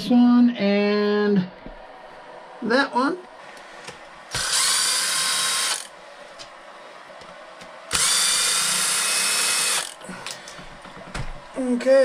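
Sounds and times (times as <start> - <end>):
power driver whining: 3.6 - 6.5, 7.2 - 11.4.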